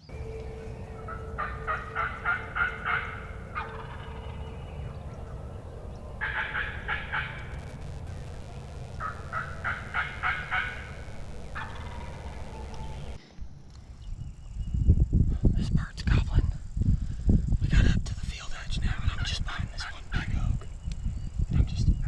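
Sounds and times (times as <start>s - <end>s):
turkey gobbling: 0.0s - 13.2s.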